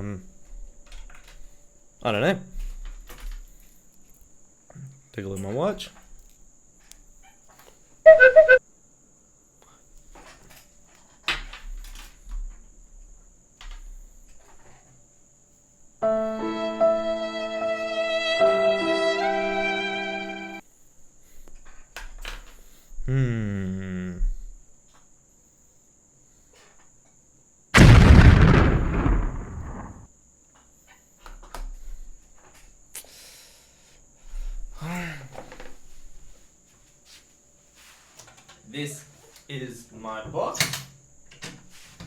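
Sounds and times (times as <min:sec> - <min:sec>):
music with held violin notes: 0:16.0 - 0:20.6
explosion blast: 0:27.8 - 0:30.1.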